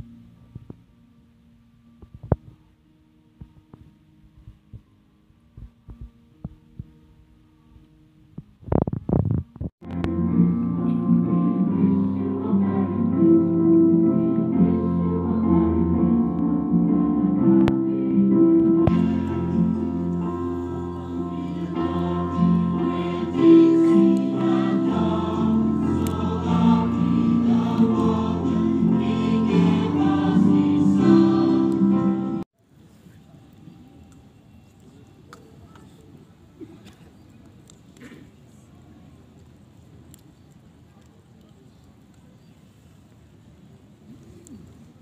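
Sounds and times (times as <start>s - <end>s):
choir singing with accompaniment: 10.0s - 32.4s.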